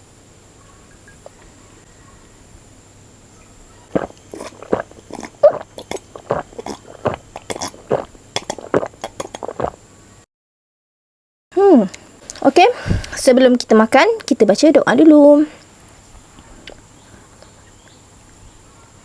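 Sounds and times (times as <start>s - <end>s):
gulping a drink: 3.6s - 9.8s
mouth clicks: 3.8s - 9.8s.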